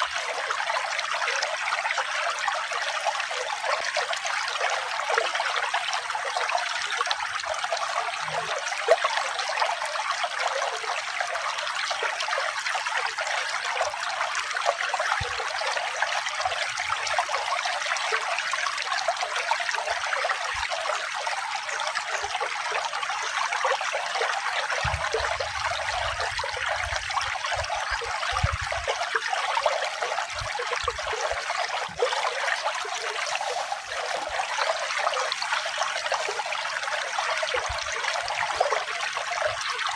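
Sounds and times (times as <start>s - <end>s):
stream trickling and babbling: 0.0s - 39.9s.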